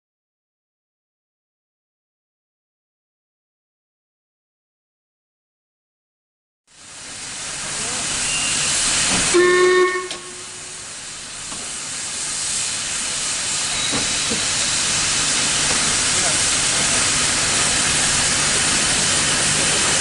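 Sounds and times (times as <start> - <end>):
steam locomotive hissing: 6.8 - 20.0
short whistle blast: 9.3 - 10.5.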